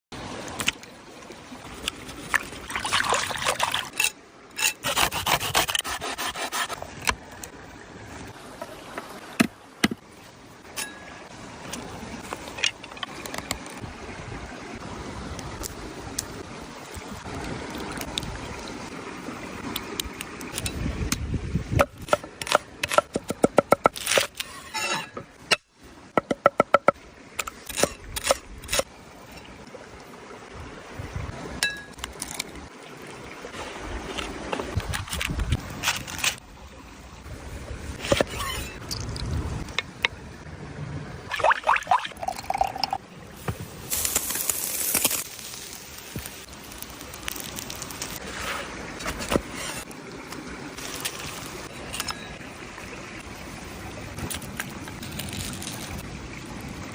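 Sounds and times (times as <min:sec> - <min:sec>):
scraping and rubbing: 0:04.6 - 0:06.8, 0:38.0 - 0:38.8, 0:47.5 - 0:49.9.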